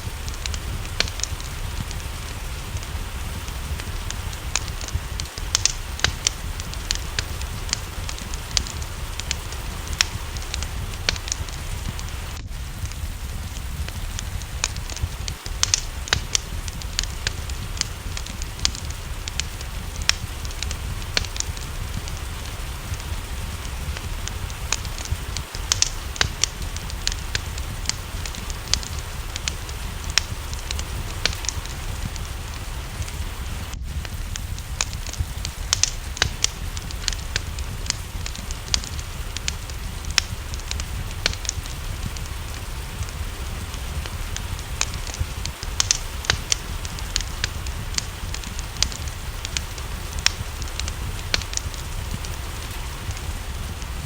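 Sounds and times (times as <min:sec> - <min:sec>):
low rumble: 0:00.0 - 0:54.0
rain: 0:00.0 - 0:54.0
sharp pops from fire: 0:00.0 - 0:54.0
wood fire crackling: 0:00.0 - 0:54.0.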